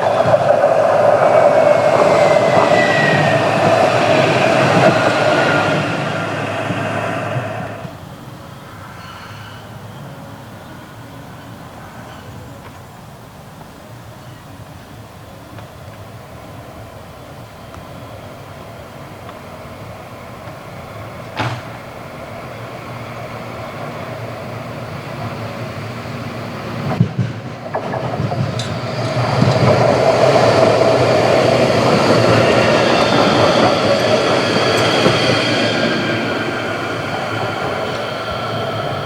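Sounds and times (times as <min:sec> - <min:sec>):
wheels clattering over rail joints: 0:00.0 - 0:08.0, 0:19.2 - 0:39.0
tram passing on rails: 0:00.0 - 0:39.0.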